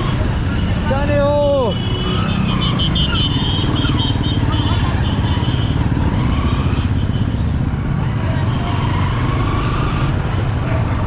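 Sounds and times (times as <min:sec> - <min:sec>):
faint street sounds: 0:00.0 - 0:11.0.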